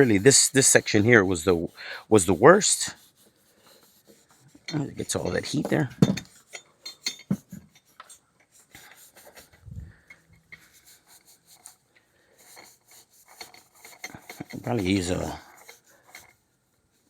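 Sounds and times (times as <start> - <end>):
scuff pad scratching metal: 0.0 - 6.7, 12.5 - 16.4.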